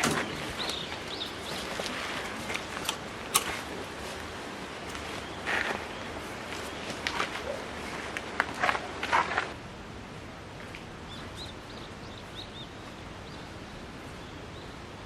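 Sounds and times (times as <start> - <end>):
rustles and crunches: 0.0 - 9.6
outdoor background noise: 0.0 - 15.0.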